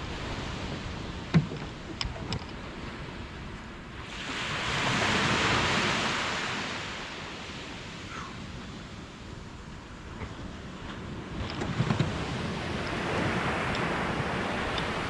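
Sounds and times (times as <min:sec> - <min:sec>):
ocean surf breaking: 0:00.0 - 0:15.0
sharp knocks: 0:01.3 - 0:01.7.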